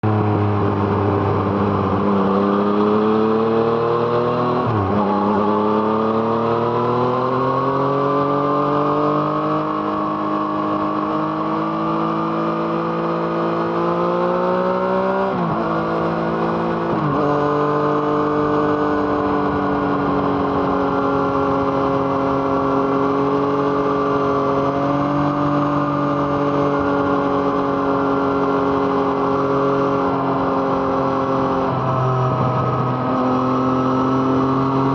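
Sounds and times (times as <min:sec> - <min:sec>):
motorcycle accelerating: 0:00.0 - 0:34.9.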